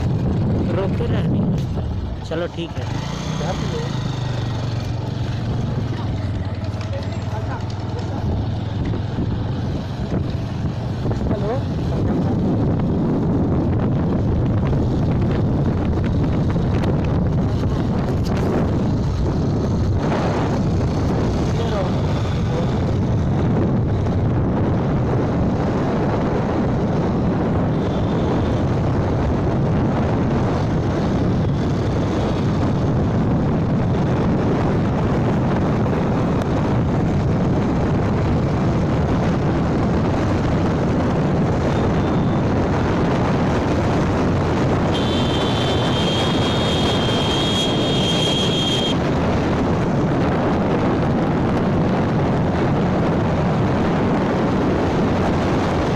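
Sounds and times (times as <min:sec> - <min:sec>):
wind rush over microphone: 0:00.0 - 0:06.4, 0:07.4 - 0:55.9
motorbike running: 0:00.0 - 0:55.9
high steady tone: 0:44.9 - 0:49.0.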